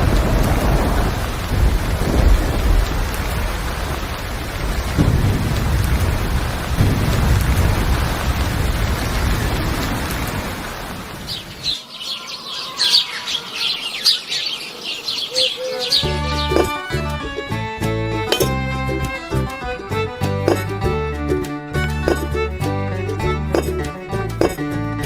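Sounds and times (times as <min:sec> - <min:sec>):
thunder rumbling: 0:00.0 - 0:11.8
heavy rain: 0:00.0 - 0:23.7
birds chirping: 0:11.1 - 0:19.6.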